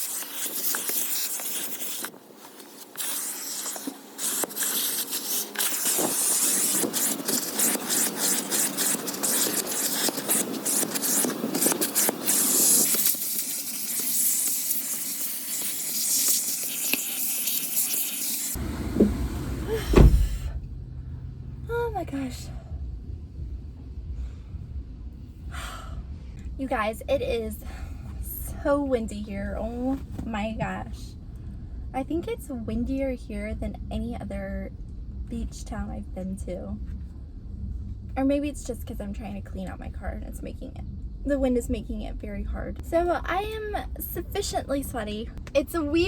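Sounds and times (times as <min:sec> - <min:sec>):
sand scraping and hissing: 0:00.0 - 0:18.6.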